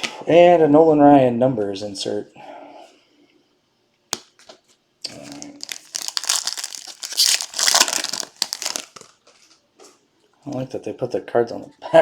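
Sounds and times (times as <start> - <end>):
foil wrapper crinkling and tearing: 5.1 - 9.6.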